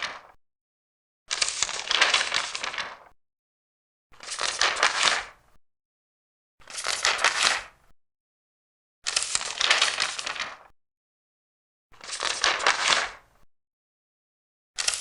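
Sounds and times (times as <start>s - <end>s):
paper pages turning: 0.0s - 0.4s, 1.3s - 3.1s, 4.2s - 5.3s, 6.7s - 7.7s, 9.1s - 10.7s, 12.0s - 13.2s, 14.8s - 15.0s.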